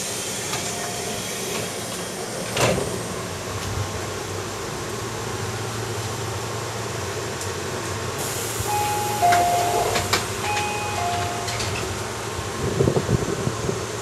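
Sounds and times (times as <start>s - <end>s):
train interior rumble: 0.0s - 14.0s
high hiss: 8.2s - 12.3s.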